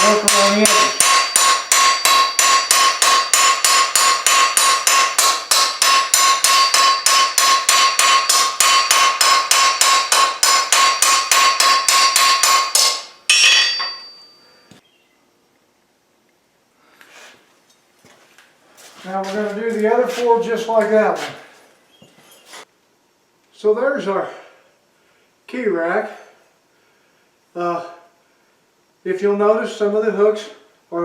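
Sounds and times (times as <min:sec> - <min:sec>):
hammer striking metal rivet: 0:00.0 - 0:14.3.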